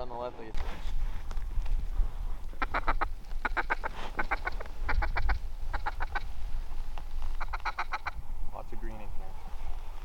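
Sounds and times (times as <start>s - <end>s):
mallard quacking: 2.6s - 6.3s, 7.4s - 8.2s.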